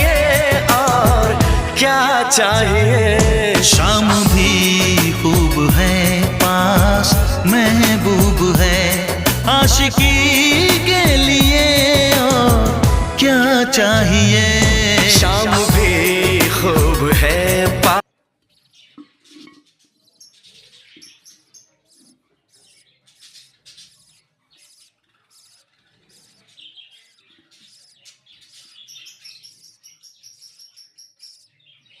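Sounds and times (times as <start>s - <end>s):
song with singing: 0.0s - 18.0s
budgerigars chirping: 18.6s - 32.0s.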